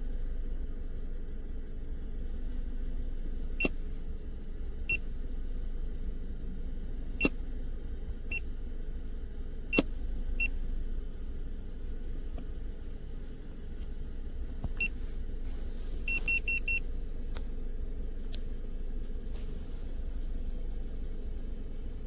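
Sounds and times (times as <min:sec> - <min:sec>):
low hum: 0:00.0 - 0:22.0
scan tool beeps: 0:16.1 - 0:16.8.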